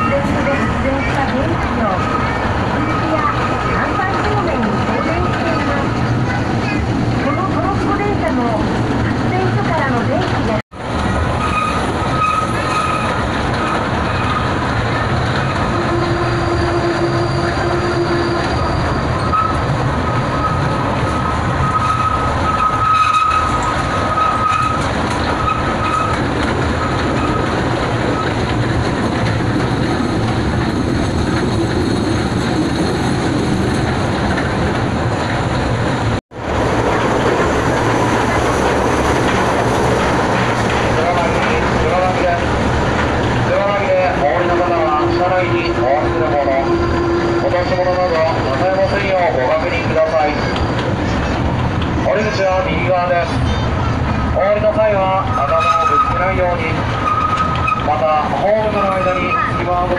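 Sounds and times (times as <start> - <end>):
train wheels rumbling on rails: 0.0 - 59.9
high thin wheel squeal: 11.4 - 14.5, 15.5 - 26.2, 44.4 - 50.8, 55.3 - 58.0, 58.6 - 59.9.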